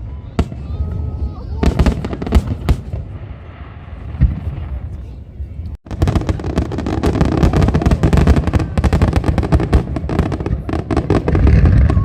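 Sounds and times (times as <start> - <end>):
fireworks crackling bangs: 0.3 - 5.1, 5.8 - 12.0.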